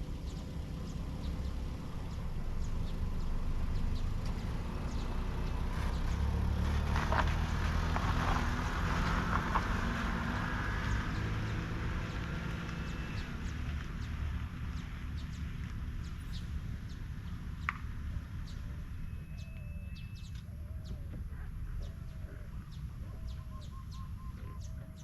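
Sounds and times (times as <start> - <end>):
low steady rumble: 0.0 - 7.3
high bird chirps: 18.4 - 21.1, 21.8 - 25.0.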